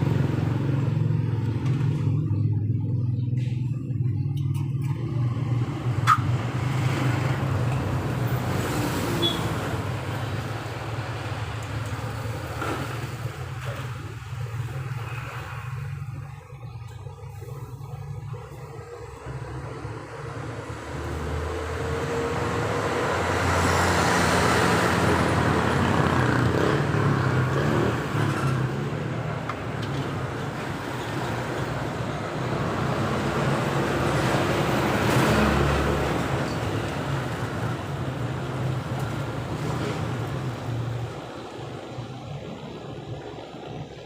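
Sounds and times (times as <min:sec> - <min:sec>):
motor vehicles passing: 0:00.0 - 0:44.0.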